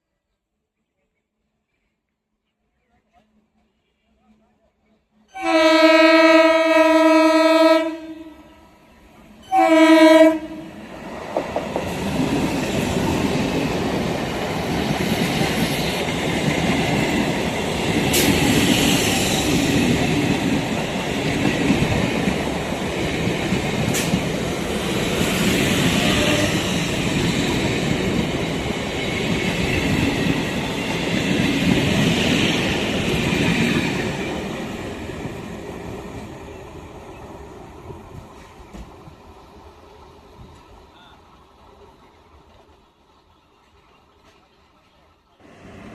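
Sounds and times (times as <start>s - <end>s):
train horn: 5.3s - 8.8s, 9.4s - 10.8s, 26.0s - 26.7s
train rumble: 9.1s - 45.9s.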